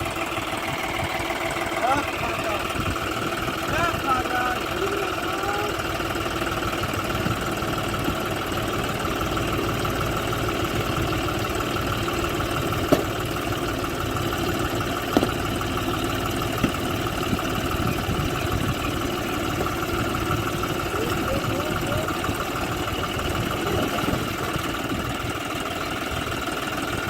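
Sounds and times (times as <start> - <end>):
tractor diesel engine running: 0.0 - 27.0
short sharp knocks: 12.9 - 13.2, 15.1 - 15.4.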